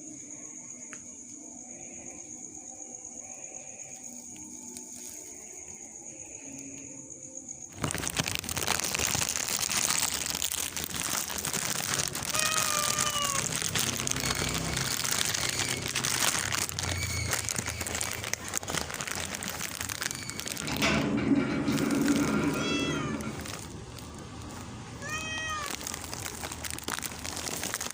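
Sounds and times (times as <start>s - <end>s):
crinkling crackling noise: 7.7s - 27.9s.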